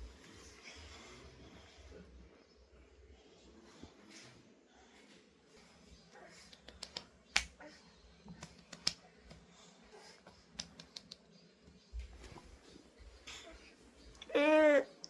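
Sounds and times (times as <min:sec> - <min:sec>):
faint sharp clicks and taps: 0:05.6 - 0:14.3.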